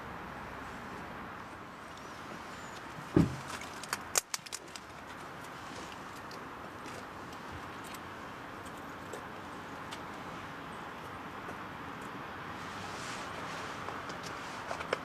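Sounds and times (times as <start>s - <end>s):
dull thump: 3.1s - 3.5s.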